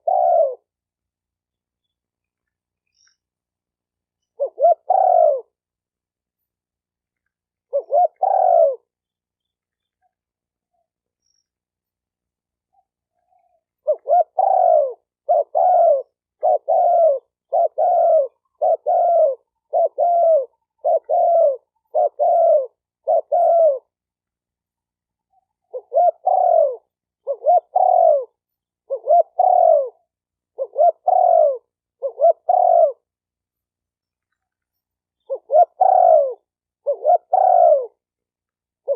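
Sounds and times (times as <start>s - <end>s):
dove cooing: 0.0s - 0.8s, 4.3s - 5.6s, 7.7s - 8.9s, 12.8s - 24.0s, 25.3s - 33.2s, 35.2s - 38.1s.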